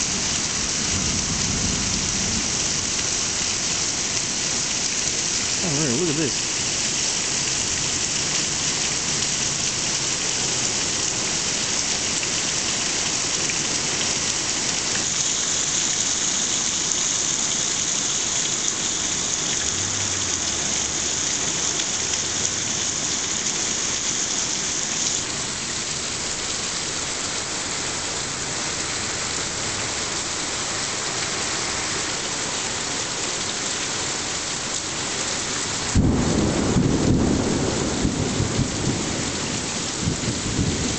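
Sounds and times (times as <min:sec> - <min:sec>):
torrential rain pouring: 0:00.0 - 0:40.9
thunder clap: 0:35.9 - 0:39.1.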